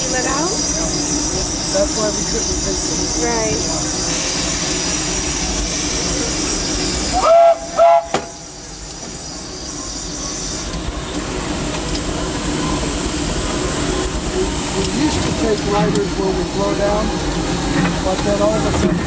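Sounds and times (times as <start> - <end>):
steam hiss: 0.0 - 18.8
locomotive running noise: 0.0 - 19.0
steam whistle blasts: 7.1 - 8.5.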